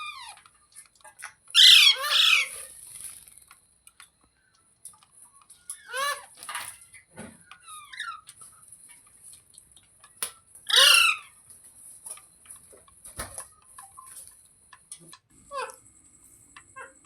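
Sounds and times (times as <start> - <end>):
parrot squawking: 1.5 - 2.7, 5.8 - 6.3, 10.7 - 11.3.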